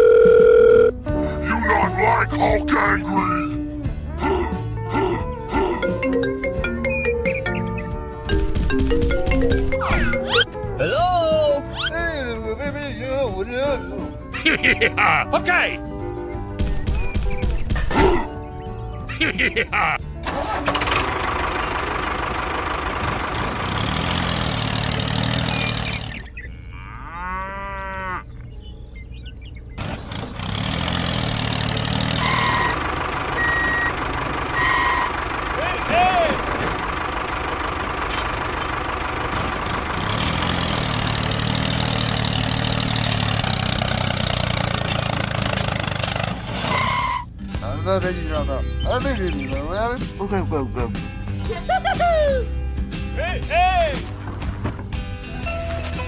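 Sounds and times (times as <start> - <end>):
engine noise: 20.0 - 26.5, 28.8 - 47.5
cow mooing: 26.4 - 28.4.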